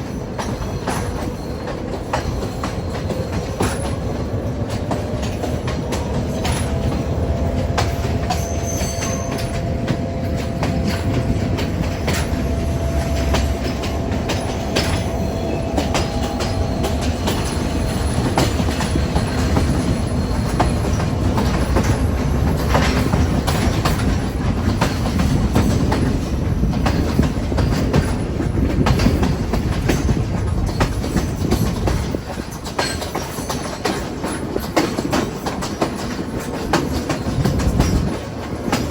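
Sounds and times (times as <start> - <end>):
train carriage rumbling: 0.0 - 38.9
wheels clacking over rail joints: 0.0 - 38.9
high-pitched wheel squeal: 4.8 - 23.8.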